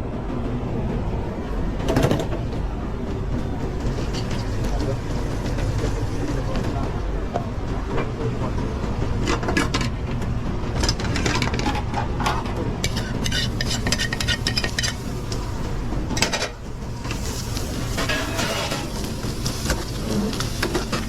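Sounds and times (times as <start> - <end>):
pans and utensils clattering: 3.8 - 6.7, 10.8 - 15.5, 16.1 - 21.0.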